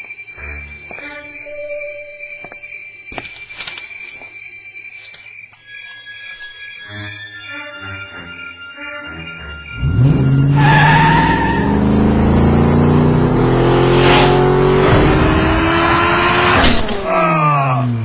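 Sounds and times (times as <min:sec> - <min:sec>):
squealing tone: 0:09.7 - 0:12.7
car engine accelerating hard: 0:09.7 - 0:17.1
sharp crack: 0:16.5 - 0:17.2.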